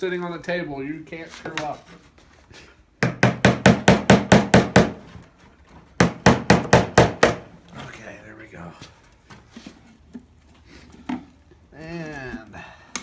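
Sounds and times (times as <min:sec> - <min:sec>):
hammer driving nails into wood: 0:03.0 - 0:05.1, 0:06.0 - 0:07.5.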